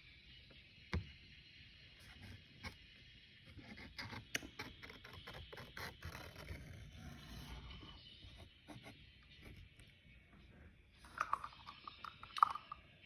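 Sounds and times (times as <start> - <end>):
drawing tool scratching paper: 3.6 - 9.7.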